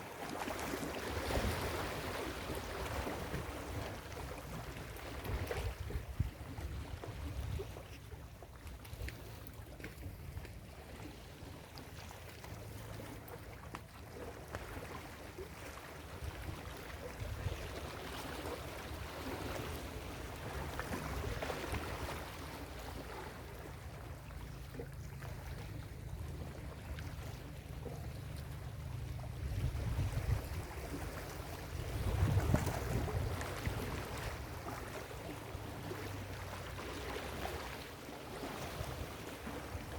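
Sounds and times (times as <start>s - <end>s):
constant low rumble: 2.5s - 39.9s.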